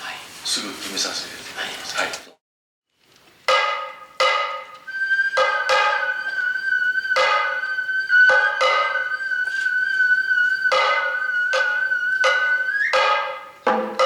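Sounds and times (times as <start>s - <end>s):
ringing drum strokes: 3.5s - 9.6s, 10.6s - 14.0s
bamboo flute long note: 4.4s - 14.0s.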